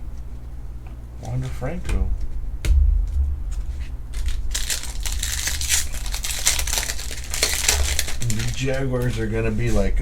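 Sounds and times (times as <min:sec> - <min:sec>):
low handling thumps: 0:01.7 - 0:04.6
wrapper crinkling and tearing: 0:03.8 - 0:09.2.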